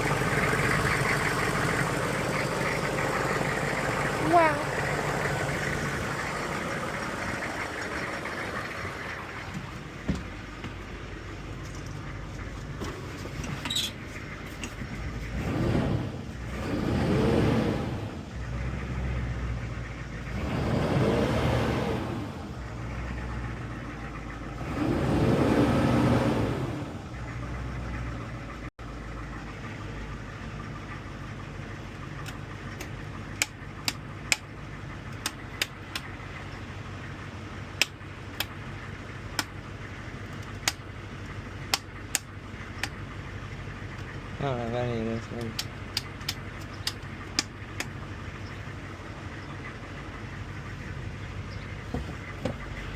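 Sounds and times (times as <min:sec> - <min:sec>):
diesel engine revving and idling: 0:00.0 - 0:52.9
sharp clicks: 0:35.1 - 0:36.1, 0:37.8 - 0:38.6, 0:41.7 - 0:43.0, 0:45.4 - 0:48.0.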